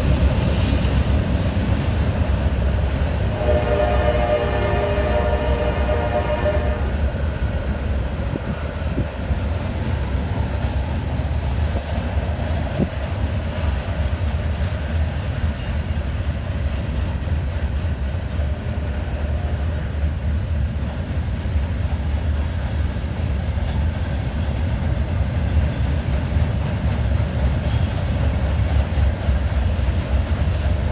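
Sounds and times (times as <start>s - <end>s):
train rumbling past: 0.0s - 30.9s
wheels ticking on rails: 0.0s - 30.9s.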